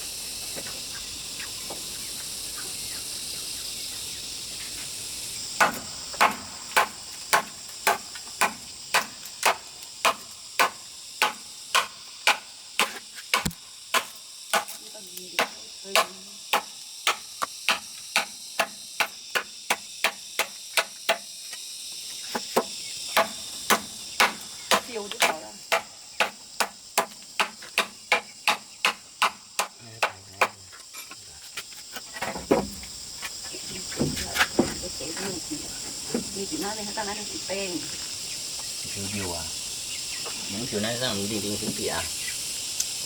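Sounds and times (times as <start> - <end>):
high drone of insects: 0.0 - 43.0.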